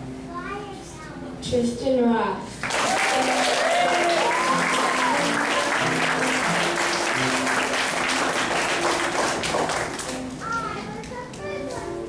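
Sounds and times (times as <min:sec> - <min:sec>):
people whooping: 0:02.6 - 0:06.8
audience applauding: 0:02.6 - 0:10.2
piano melody: 0:03.6 - 0:12.0.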